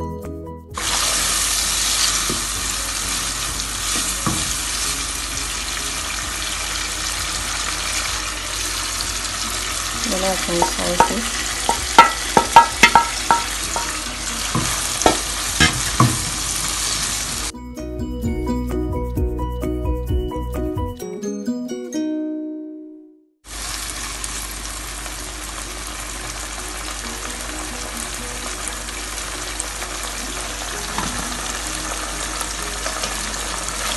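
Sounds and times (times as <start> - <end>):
vegetables sizzling in oil: 0.8 - 17.5, 23.5 - 33.9
knocks and clinks against pan: 10.6 - 14.0.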